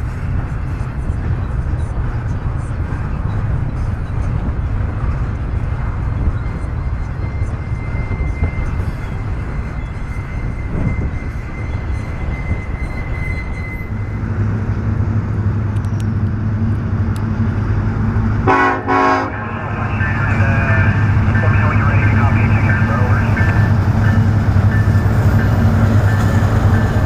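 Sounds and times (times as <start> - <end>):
diesel locomotive drone: 0.0 - 27.0
freight train rumbling past: 0.0 - 27.0
locomotive air horn: 18.4 - 23.8.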